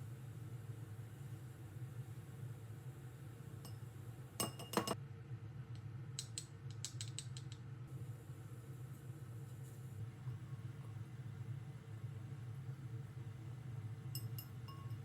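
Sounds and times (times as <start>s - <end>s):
objects clicking when handled: 6.2s - 7.6s
low steady hum: 7.8s - 15.0s.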